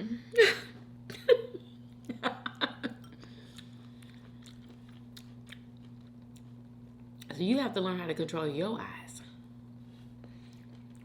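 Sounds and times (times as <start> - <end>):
chewing food: 3.3 - 7.3, 9.7 - 11.0.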